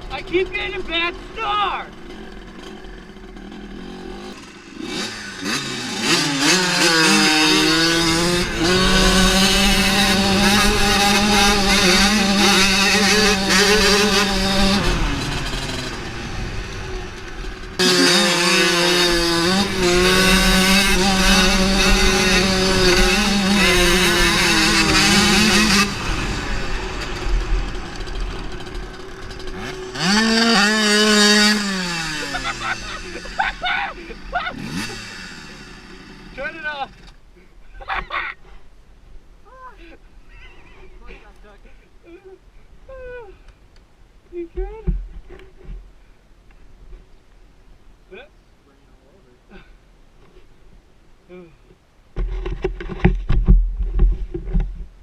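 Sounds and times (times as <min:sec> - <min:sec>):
dirt bike engine revving: 0:00.0 - 0:37.2.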